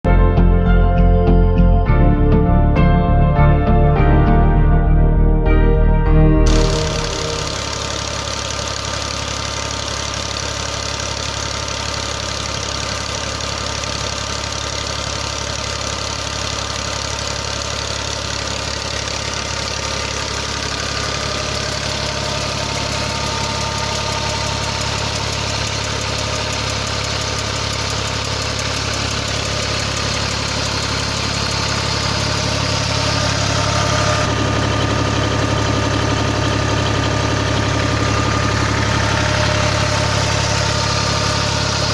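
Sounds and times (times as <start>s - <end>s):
tractor diesel engine running: 6.1s - 41.9s.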